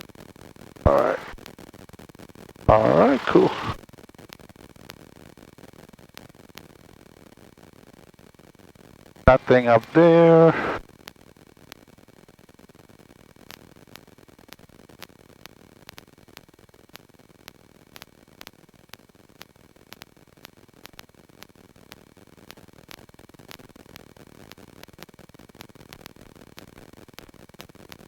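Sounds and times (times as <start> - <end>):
static hiss: 0.9 - 1.4, 2.7 - 3.8, 9.3 - 10.8.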